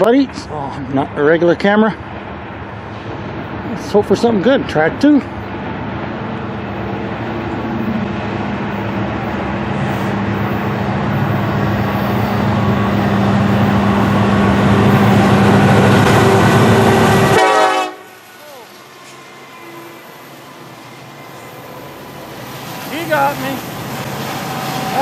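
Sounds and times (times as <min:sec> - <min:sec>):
diesel locomotive engine rumble: 0:00.0 - 0:25.0.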